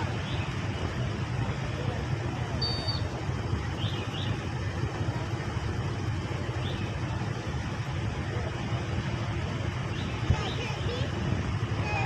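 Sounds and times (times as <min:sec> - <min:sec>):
low rumble of vehicle noise: 0:00.0 - 0:12.0
faint short high chirps: 0:02.6 - 0:03.1.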